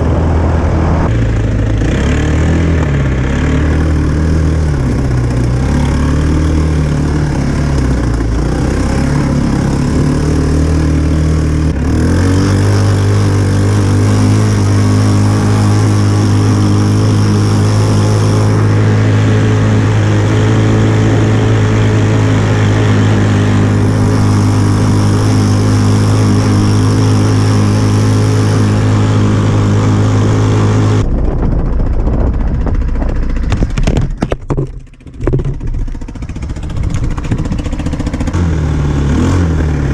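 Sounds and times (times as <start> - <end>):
quad bike engine revving: 0.0 - 39.9
irregular rattling noise: 31.3 - 38.3.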